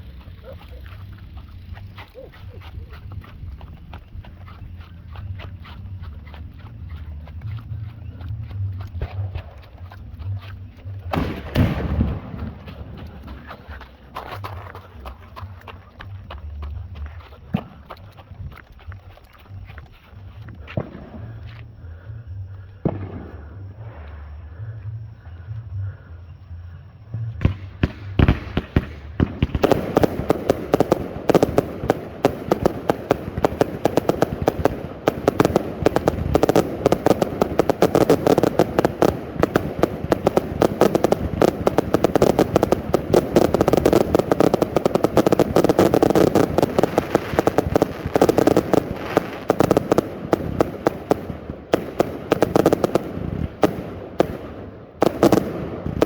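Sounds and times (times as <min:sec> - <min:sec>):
firework cake firing barrage: 0:11.0 - 0:15.1, 0:27.4 - 0:56.0.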